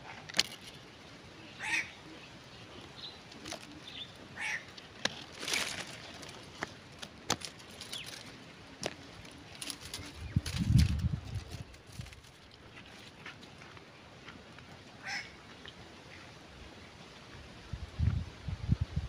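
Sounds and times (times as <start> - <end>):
rustles: 0.0 - 18.9
short bird calls: 1.4 - 4.7.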